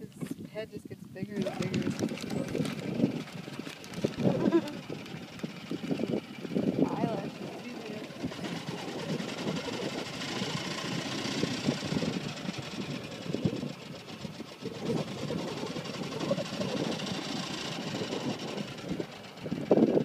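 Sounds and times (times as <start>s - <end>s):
vehicle engine idling: 1.2s - 20.0s.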